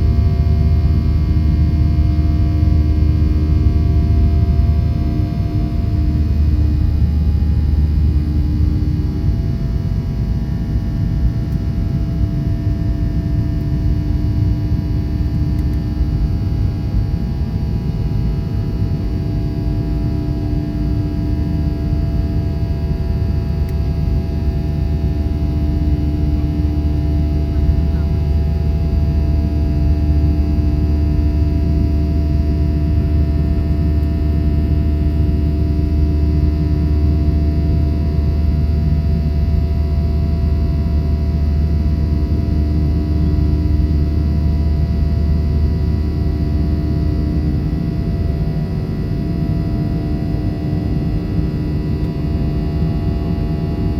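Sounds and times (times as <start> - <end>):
jet engines rumbling and whining: 27.3 - 30.2.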